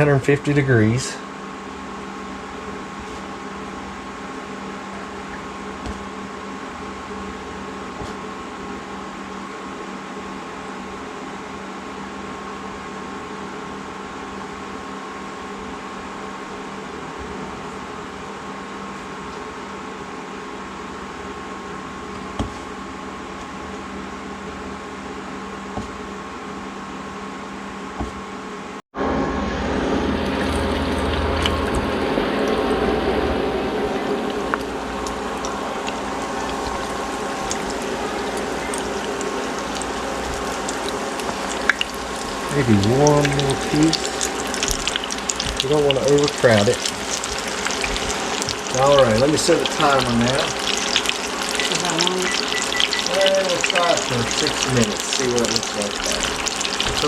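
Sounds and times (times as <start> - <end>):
appliance hum with whine: 0.0 - 57.0
hot oil bubbling and crackling: 30.1 - 57.0.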